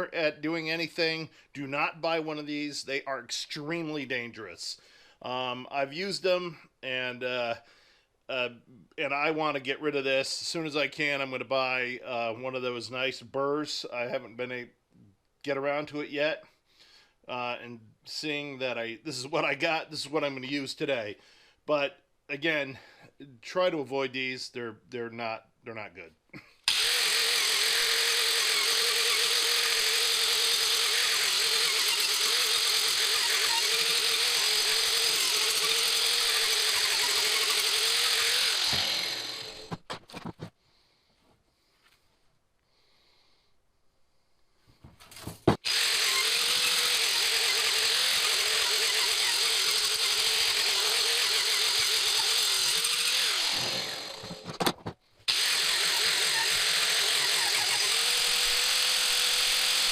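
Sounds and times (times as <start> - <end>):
angle grinder cutting wood: 26.7 - 39.9, 45.6 - 59.9.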